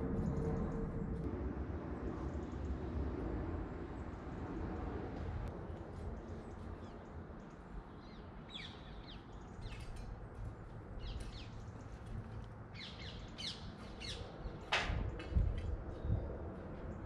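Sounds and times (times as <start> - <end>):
small songbirds chirping: 6.4 - 10.2, 11.0 - 12.1, 12.7 - 14.7.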